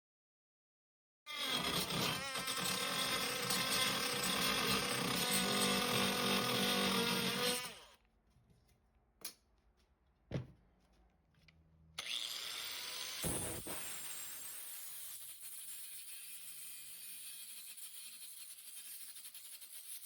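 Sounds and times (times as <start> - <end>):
handheld power tool running: 1.3 - 8.0, 12.0 - 20.0.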